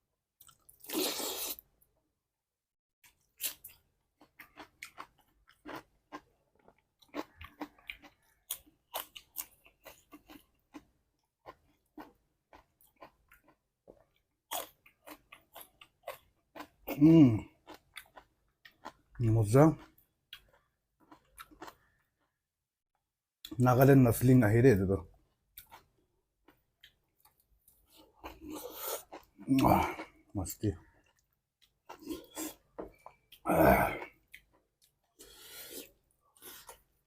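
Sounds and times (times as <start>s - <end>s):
chewing food with mouth smacks: 3.0s - 19.2s, 19.8s - 22.4s, 34.0s - 37.0s.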